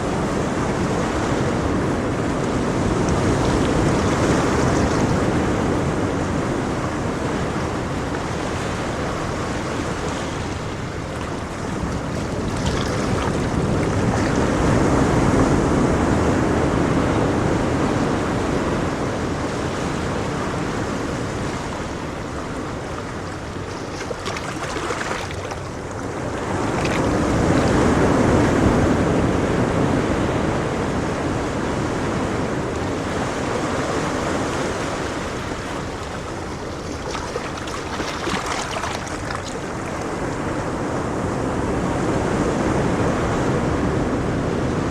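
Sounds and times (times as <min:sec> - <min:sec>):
ocean waves on shore: 0:00.0 - 0:44.9.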